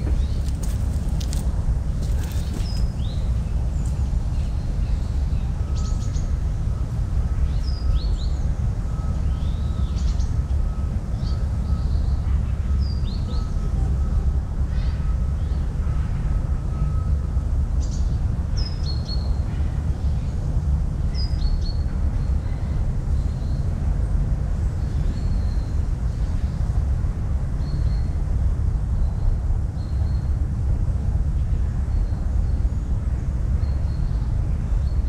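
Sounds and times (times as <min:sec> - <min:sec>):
small birds chirping: 0:00.0 - 0:06.4
low outdoor rumble: 0:00.0 - 0:35.0.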